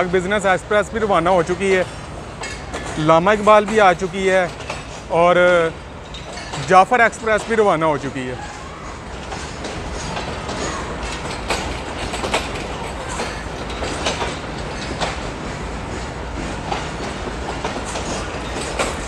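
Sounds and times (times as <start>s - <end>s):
train rumble: 0.0s - 19.0s
train wheels clicking over rail joints: 0.0s - 19.0s.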